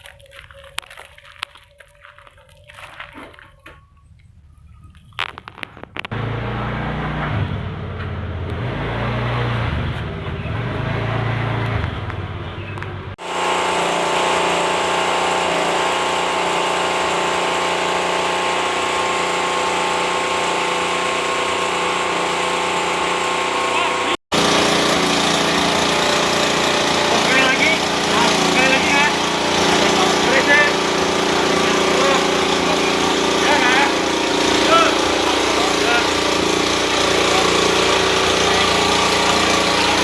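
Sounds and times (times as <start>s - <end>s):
machine hum shifting in pitch: 6.1s - 40.0s
motor running steadily: 13.2s - 40.0s.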